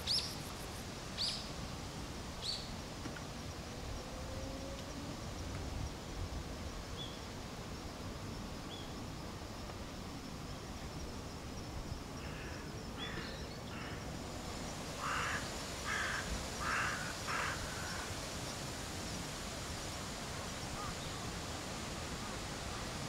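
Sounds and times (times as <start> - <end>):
outdoor background hiss: 0.0 - 23.0
bird harsh calls: 15.0 - 18.1.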